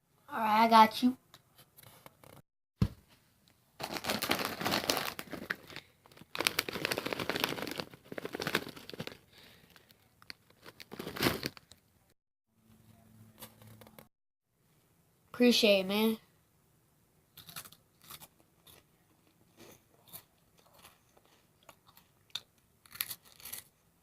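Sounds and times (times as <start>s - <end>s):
plastic snack bag rustling: 3.8s - 11.8s.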